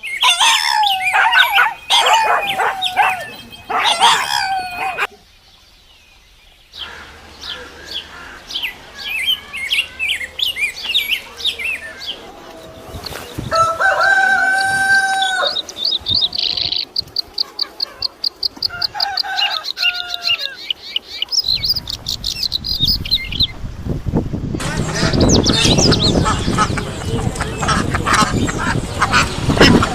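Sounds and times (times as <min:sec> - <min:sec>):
rooster crowing: 0:00.2 - 0:05.1, 0:13.5 - 0:15.6, 0:18.6 - 0:20.6
chicks cheeping: 0:08.7 - 0:23.6, 0:24.6 - 0:29.9.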